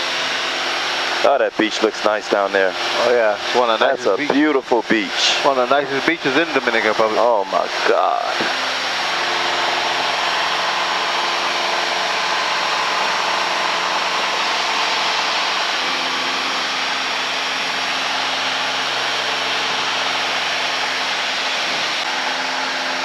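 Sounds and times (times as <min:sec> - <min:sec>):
propeller plane engine droning: 0:00.0 - 0:23.0.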